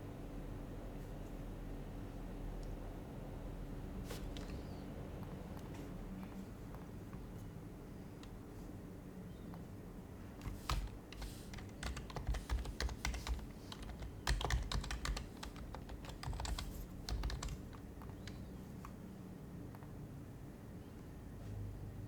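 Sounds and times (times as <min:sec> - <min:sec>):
soft keyboard typing: 0:10.4 - 0:19.0.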